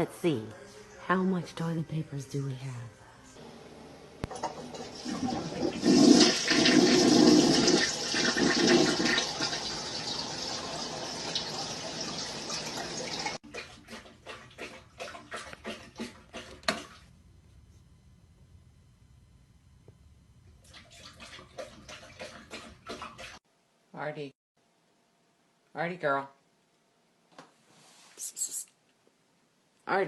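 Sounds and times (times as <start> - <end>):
toilet flushing: 4.2 - 17.0.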